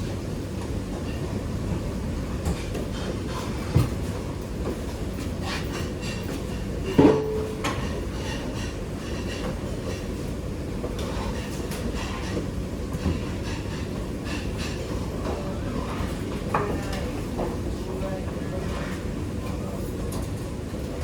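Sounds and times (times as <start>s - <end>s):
kitchen knocks and clanks: 5.5s - 9.6s.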